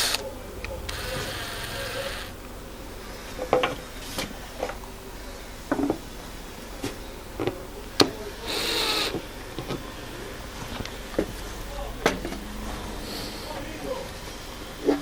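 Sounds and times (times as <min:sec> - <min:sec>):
power drill running: 0:00.0 - 0:00.2, 0:00.9 - 0:02.4, 0:08.4 - 0:09.2.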